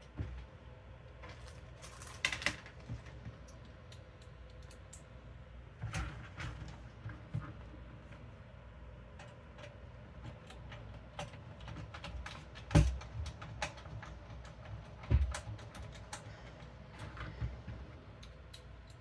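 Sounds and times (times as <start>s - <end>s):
light clicks and taps: 2.6s - 5.1s.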